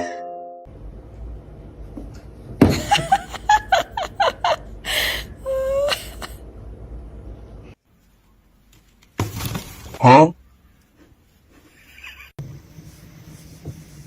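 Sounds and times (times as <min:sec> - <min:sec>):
person laughing: 0:02.7 - 0:06.4.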